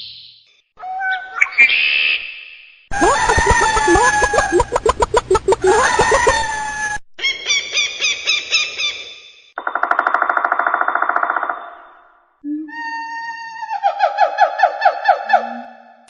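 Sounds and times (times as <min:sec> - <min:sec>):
hens clucking: 0:02.9 - 0:07.0.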